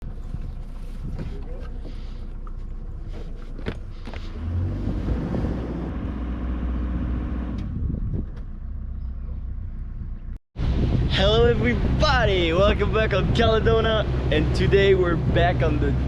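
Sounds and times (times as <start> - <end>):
boat engine humming: 0.0 - 7.5, 8.4 - 16.0.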